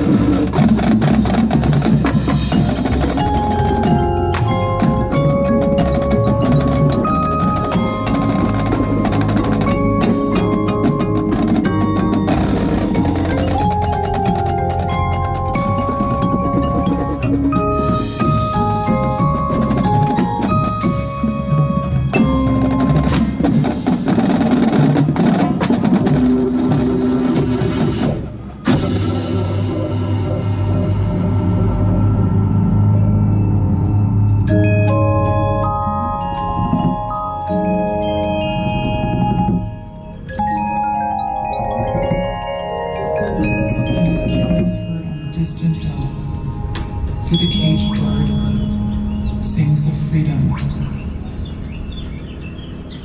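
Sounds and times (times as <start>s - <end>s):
mallet instruments ringing: 0.0s - 26.2s, 28.6s - 53.0s
low sustained note: 43.9s - 52.2s.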